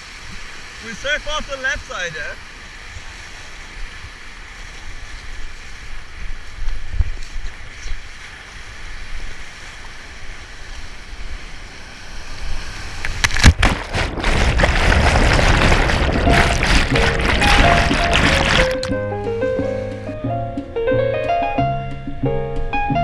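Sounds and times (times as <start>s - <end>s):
rushing whitewater: 0.0s - 19.0s
wind buffeting microphone: 4.8s - 9.5s, 12.4s - 19.1s
low rumbles: 13.2s - 21.2s.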